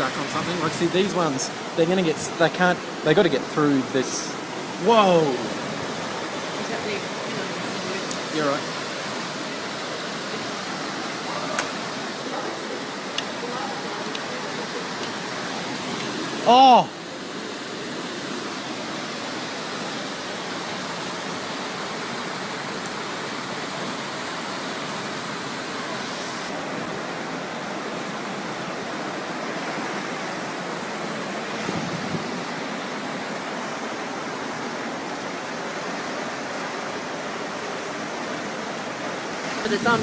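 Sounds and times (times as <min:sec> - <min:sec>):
floodwater rushing: 0:00.0 - 0:40.0.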